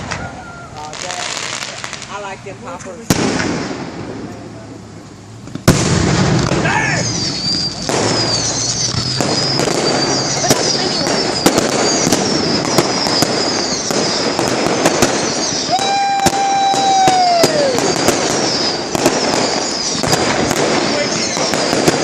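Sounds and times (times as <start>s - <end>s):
firework whistle: 0.0s - 1.9s, 5.7s - 22.0s
fireworks popping and crackling: 0.0s - 22.0s.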